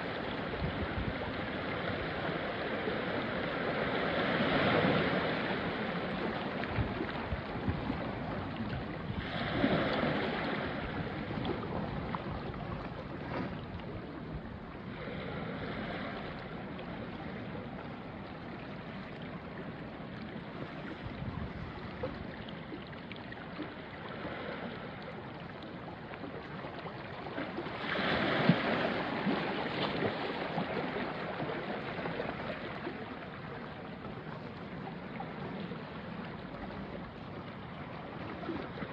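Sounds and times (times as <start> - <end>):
waves washing on rocky shore: 0.0 - 19.2, 27.6 - 33.0.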